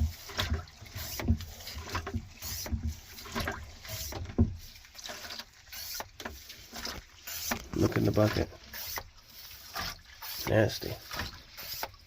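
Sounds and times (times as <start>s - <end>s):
hand pump strokes: 0.0s - 12.0s
water sloshing and splashing: 0.0s - 12.0s.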